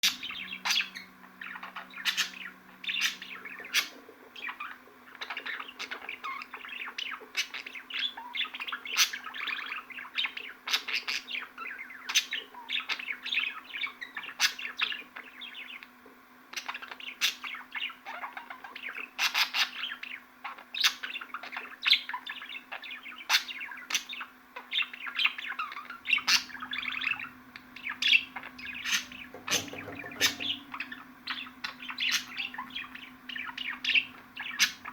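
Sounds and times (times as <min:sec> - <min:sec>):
faint low hum: 0:00.0 - 0:10.5, 0:22.4 - 0:34.9
budgerigars chattering: 0:00.0 - 0:15.8, 0:20.8 - 0:34.9.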